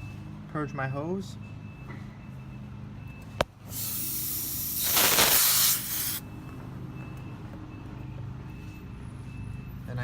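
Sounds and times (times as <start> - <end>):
refrigerant hissing from hose: 3.7 - 6.2.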